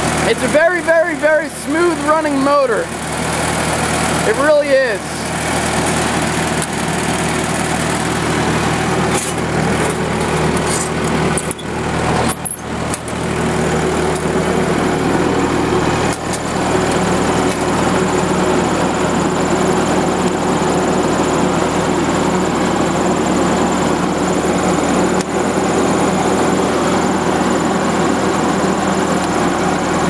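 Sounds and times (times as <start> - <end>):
generator engine running: 0.0 - 30.0.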